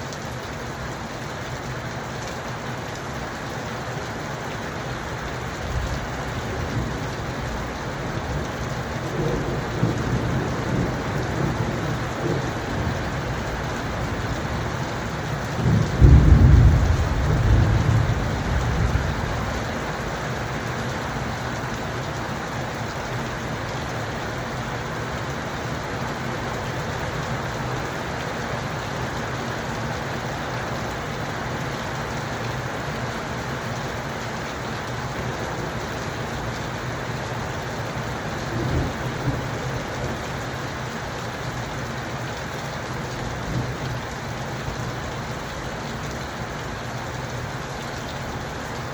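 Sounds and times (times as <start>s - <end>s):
steady rain falling: 0.0s - 48.9s
thunder rumbling: 8.3s - 14.9s, 15.5s - 20.1s, 38.4s - 40.2s.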